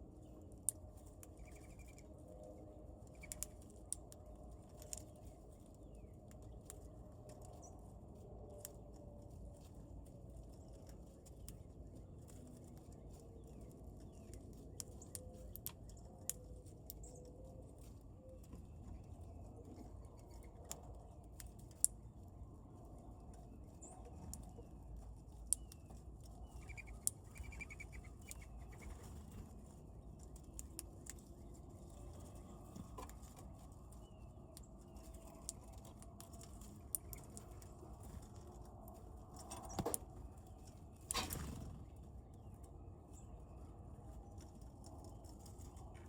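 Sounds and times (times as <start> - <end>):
low background rumble: 0.0 - 46.0
birds clicking and tapping: 0.1 - 46.0
birds chirping: 23.7 - 38.6.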